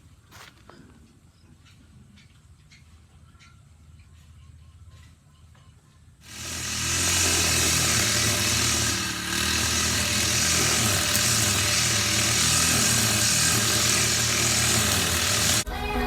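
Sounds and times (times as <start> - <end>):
small engine running: 6.2 - 15.6.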